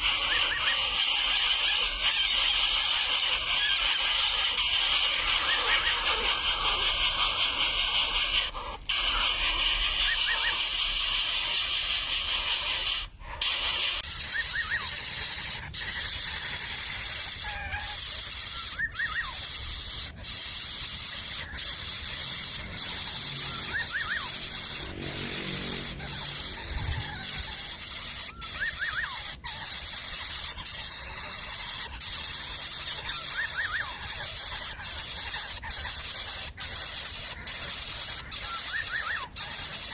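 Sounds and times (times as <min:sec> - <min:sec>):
loud high-pitched hiss: 0:08.9 - 0:39.9.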